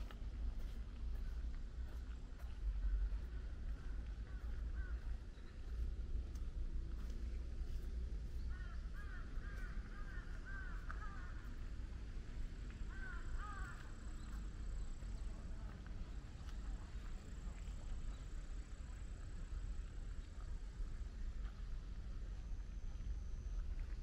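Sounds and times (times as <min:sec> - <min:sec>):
steady low rumble: 0:00.0 - 0:24.0
bird calling: 0:08.4 - 0:11.6, 0:12.9 - 0:14.5.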